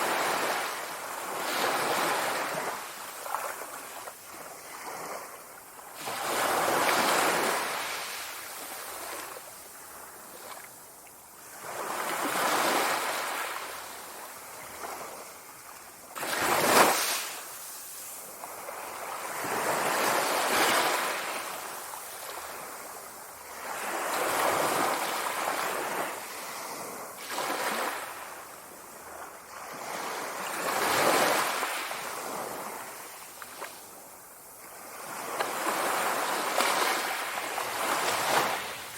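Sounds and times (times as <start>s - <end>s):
sea waves breaking: 16.2s - 21.8s, 35.0s - 38.9s.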